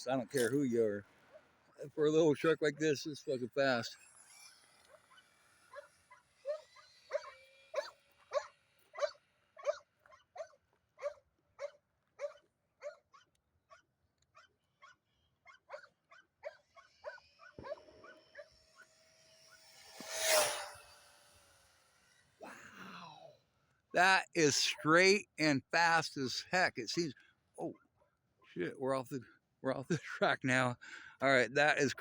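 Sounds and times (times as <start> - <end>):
dog barking: 6.5 - 13.8, 14.4 - 18.5
steady thin whine: 17.0 - 22.4.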